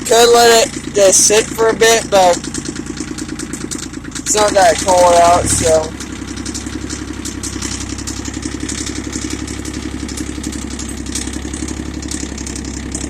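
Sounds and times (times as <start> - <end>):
diesel tractor engine idling: 0.0 - 13.0.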